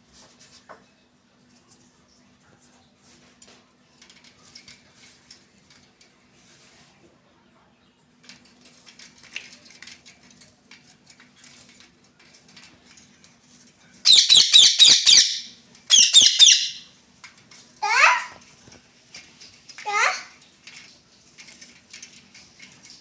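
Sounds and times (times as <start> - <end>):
faint clicking and rustling: 0.1 - 14.0, 17.0 - 23.0
parrot screeching: 14.1 - 16.9, 17.8 - 18.4, 19.9 - 20.3.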